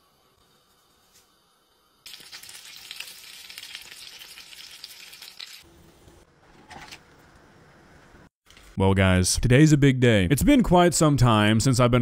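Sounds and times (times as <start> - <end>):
food sizzling in a pan: 2.0 - 5.7.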